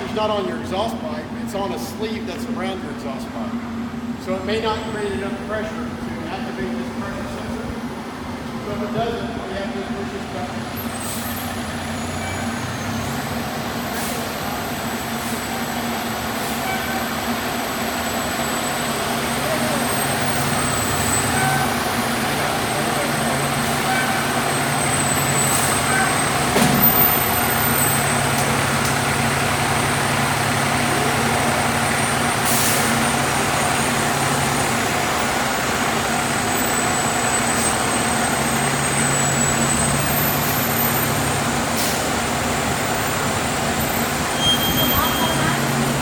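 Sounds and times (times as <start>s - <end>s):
fire truck engine idling: 0.0s - 46.0s
exhaust blower humming: 17.4s - 39.2s.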